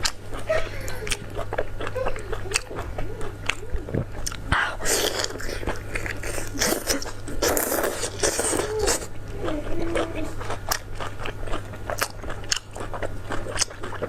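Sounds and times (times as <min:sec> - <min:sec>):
low hummed voice: 0:00.0 - 0:10.7
chewing crisp food: 0:00.0 - 0:14.0.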